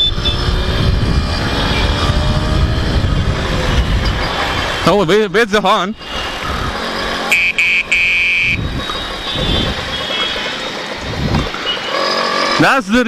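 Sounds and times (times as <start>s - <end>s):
moped horn beeping: 0.0s - 0.5s, 7.3s - 10.8s
traffic and riding noise: 0.0s - 13.0s.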